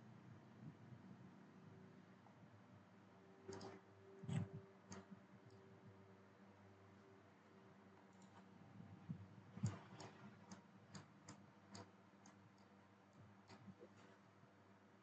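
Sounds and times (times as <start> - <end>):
computer mouse clicks: 3.5 - 5.6, 9.1 - 14.2.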